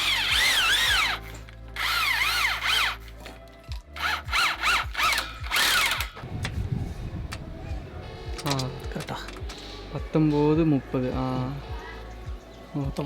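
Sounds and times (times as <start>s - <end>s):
power drill whining in pulses: 0.0s - 3.1s, 4.0s - 6.3s.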